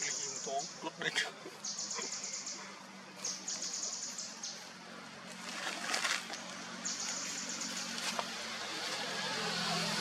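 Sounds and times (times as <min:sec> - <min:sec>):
rustling noise: 0:05.3 - 0:06.5.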